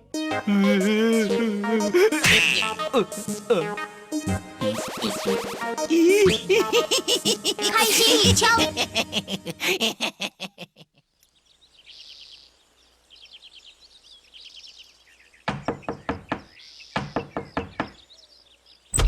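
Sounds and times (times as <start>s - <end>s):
birds chirping in trills: 10.8s - 19.0s
rapid sharp knocks: 15.4s - 18.0s.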